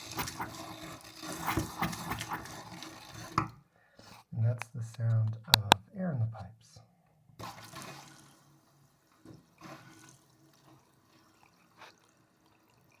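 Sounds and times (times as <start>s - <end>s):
faucet spitting and dripping: 9.8s - 13.0s.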